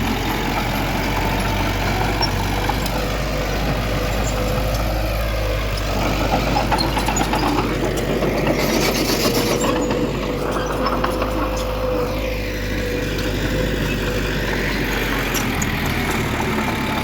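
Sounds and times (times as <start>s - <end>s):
diesel machinery running: 0.0s - 17.0s
metallic clanks and rattles: 5.8s - 11.9s.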